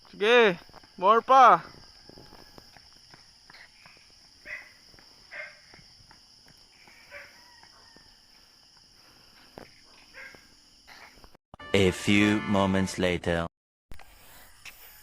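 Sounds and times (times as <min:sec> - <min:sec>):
soft footsteps: 0:00.0 - 0:01.0, 0:01.6 - 0:11.4
insects trilling: 0:00.0 - 0:11.4.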